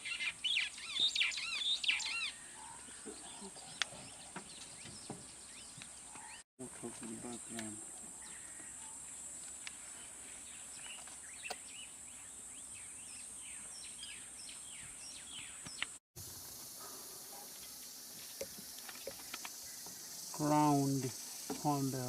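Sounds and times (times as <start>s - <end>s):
high hiss of insects: 16.2s - 22.0s
high-pitched insect buzzing: 16.2s - 22.0s.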